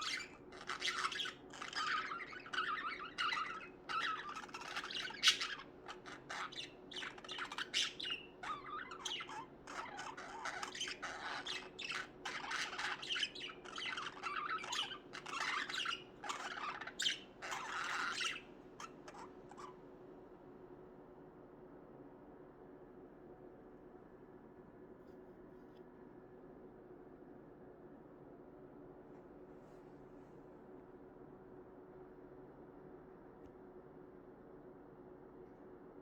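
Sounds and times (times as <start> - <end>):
budgerigars chirping and squawking: 0.0 - 19.8.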